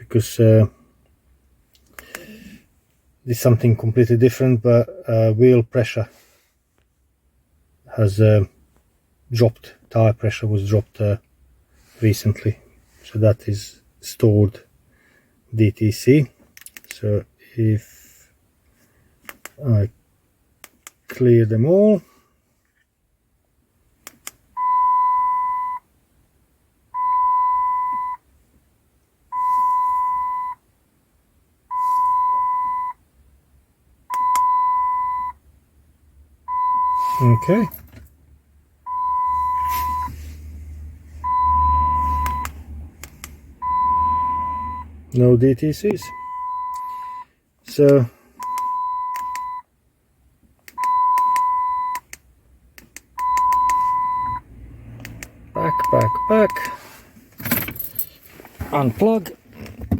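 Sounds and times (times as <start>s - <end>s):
electronic beep: 38.9s - 40.1s, 55.6s - 56.7s.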